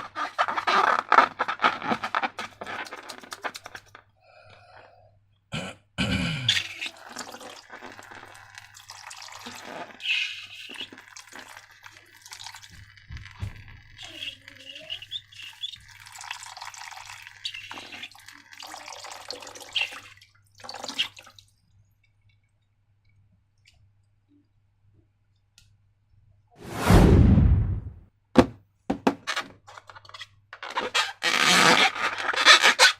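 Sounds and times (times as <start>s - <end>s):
liquid pouring and splashing: 6.6s - 21.6s.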